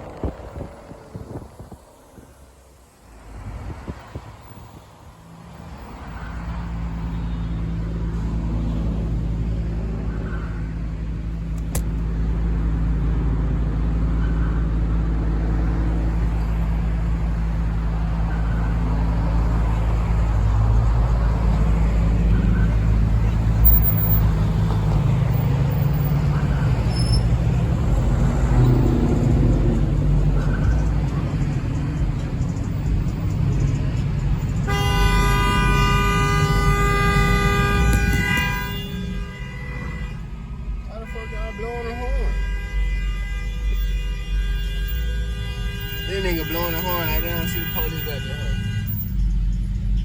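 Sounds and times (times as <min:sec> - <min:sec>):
sharp click: 0:11.5 - 0:12.0.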